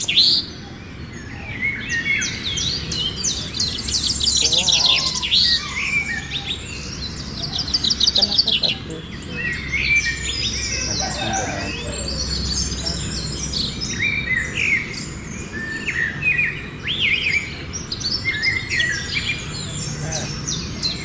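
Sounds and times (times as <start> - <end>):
birds chirping and calling: 0.0 - 21.0.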